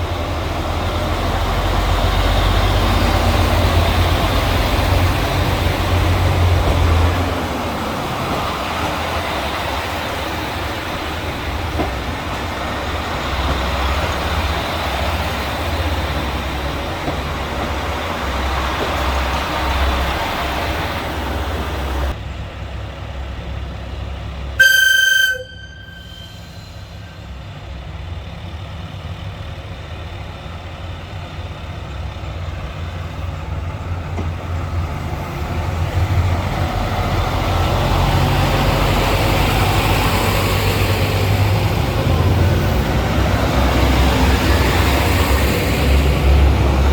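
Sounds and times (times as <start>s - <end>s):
diesel railcar rumbling: 0.0s - 46.9s
short high horn toot: 24.6s - 27.2s.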